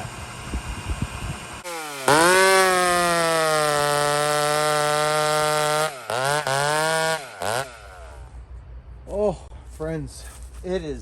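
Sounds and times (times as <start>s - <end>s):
chainsaw at high revs: 1.5s - 8.3s.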